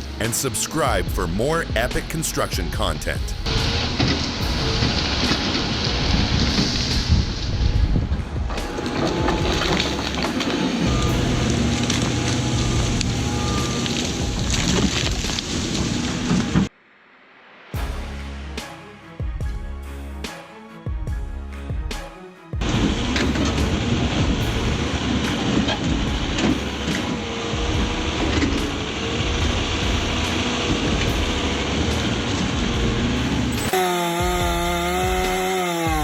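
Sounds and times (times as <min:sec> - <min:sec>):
heavy machinery rumbling: 0:00.2 - 0:16.7, 0:22.6 - 0:36.0
machine motor running: 0:33.6 - 0:36.0.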